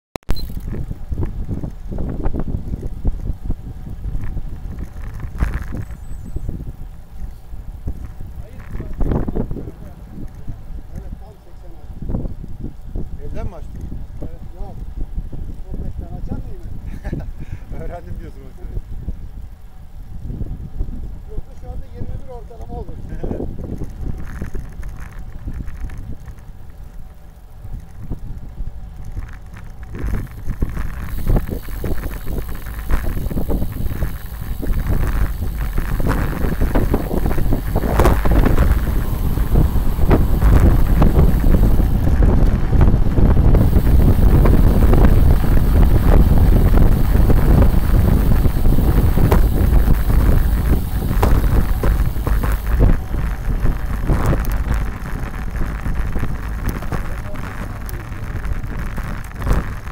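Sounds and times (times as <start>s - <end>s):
bicycle rattles and knocks: 0.2s - 59.9s
wind buffeting microphone: 0.3s - 59.9s.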